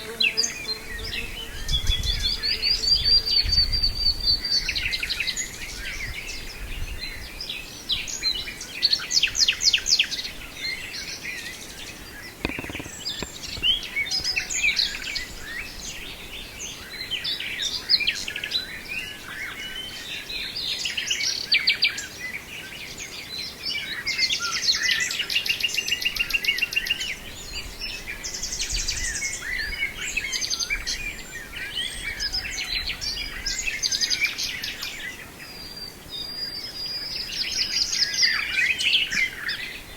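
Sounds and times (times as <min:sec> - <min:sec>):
nightingale singing: 0:10.7 - 0:17.4.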